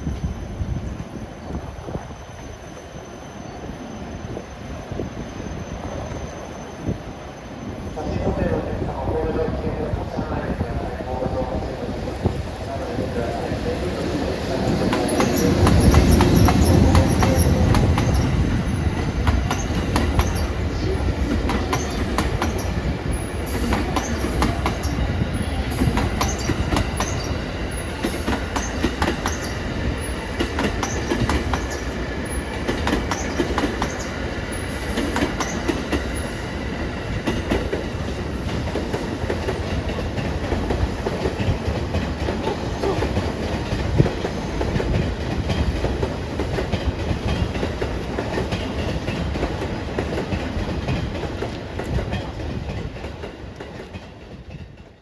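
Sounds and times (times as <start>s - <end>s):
locomotive rumbling past: 7.7s - 54.2s.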